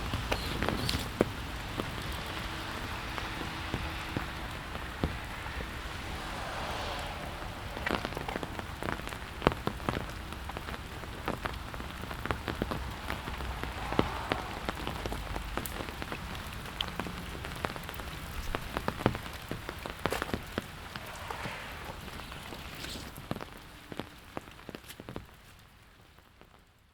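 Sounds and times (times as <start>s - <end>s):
sharp raindrop impacts: 0.0s - 25.5s
rain falling: 0.0s - 26.9s.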